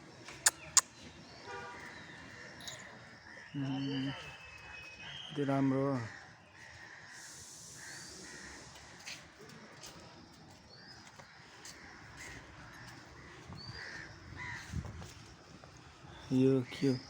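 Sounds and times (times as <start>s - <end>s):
small birds chirping: 0.0s - 17.0s
crows cawing: 6.0s - 9.2s, 11.2s - 14.8s.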